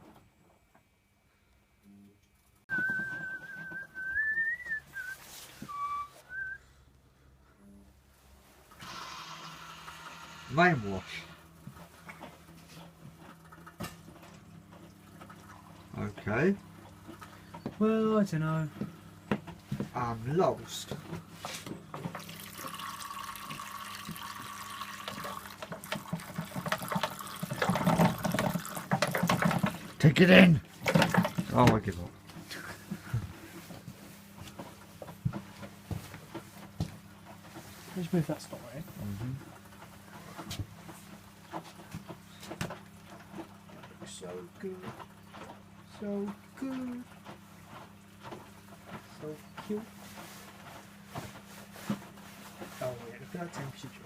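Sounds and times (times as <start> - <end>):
person whistling a tune: 2.7 - 6.6
low machine hum: 9.4 - 54.0
water splashing in washing machine drum: 22.0 - 32.1.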